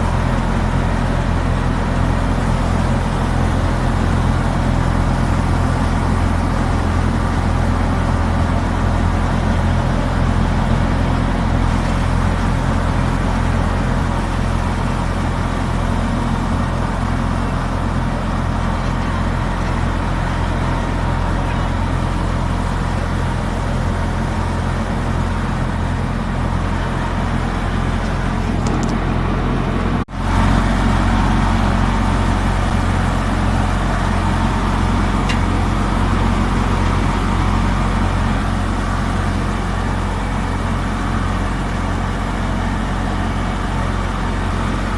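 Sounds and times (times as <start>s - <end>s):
thresher machine noise: 0.0s - 44.9s
tractor engine drone: 0.0s - 44.9s.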